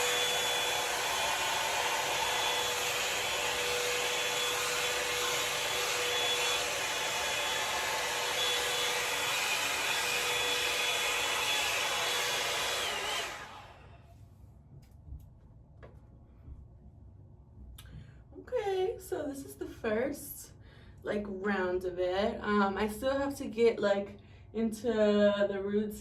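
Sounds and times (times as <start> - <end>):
motor winding down: 0.0 - 13.9
hair dryer brush blowing air: 0.0 - 14.2.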